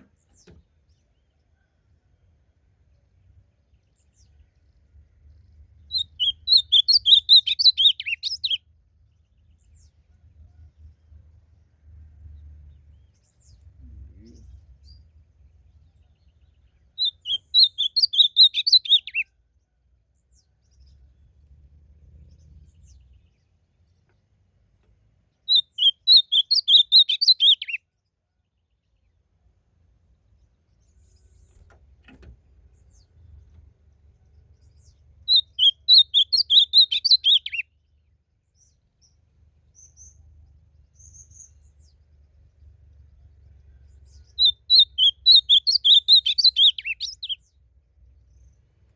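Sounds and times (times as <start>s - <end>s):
bird singing warbled phrases: 2.9s - 11.2s, 12.3s - 24.5s, 25.2s - 29.4s, 30.1s - 48.9s
faint low rumble: 8.6s - 17.0s.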